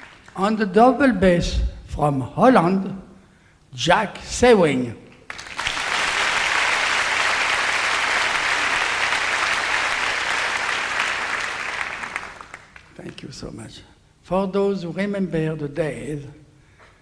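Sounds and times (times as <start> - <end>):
audience applauding: 0.0 - 0.4, 5.2 - 13.0.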